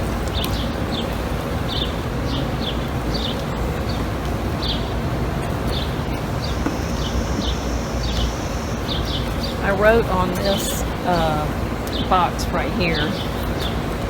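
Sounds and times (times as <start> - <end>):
bird chirping: 5.7 - 9.8.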